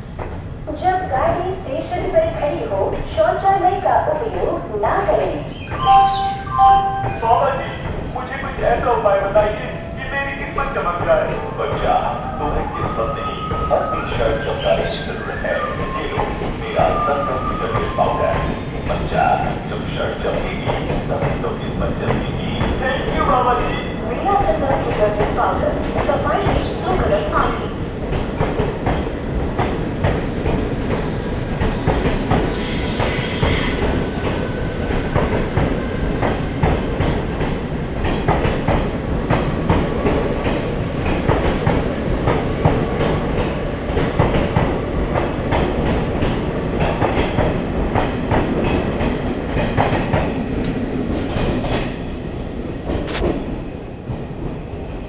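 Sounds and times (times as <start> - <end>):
train wheels clattering: 16.0 - 52.1
high wheel squeal: 32.5 - 33.8.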